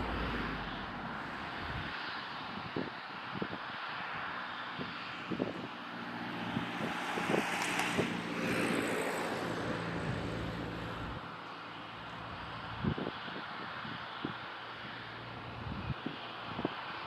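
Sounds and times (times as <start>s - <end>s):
jet engines roaring past: 0.0s - 17.0s.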